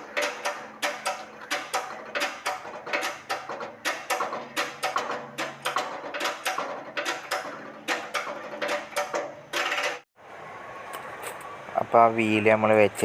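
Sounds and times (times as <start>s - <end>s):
metallic clicking and knocking: 0.0s - 10.1s.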